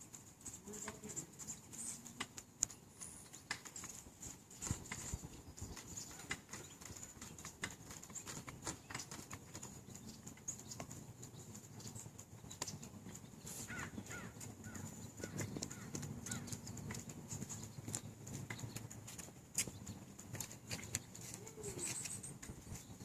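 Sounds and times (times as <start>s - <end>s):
light clicks and taps: 0.1s - 4.0s, 14.1s - 22.8s
bird chirps: 0.8s - 23.0s.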